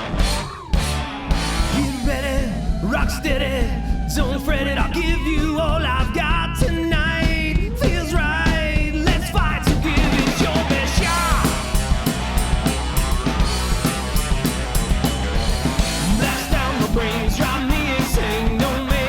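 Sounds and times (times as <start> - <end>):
rock song with singer and drums: 0.0 - 19.0.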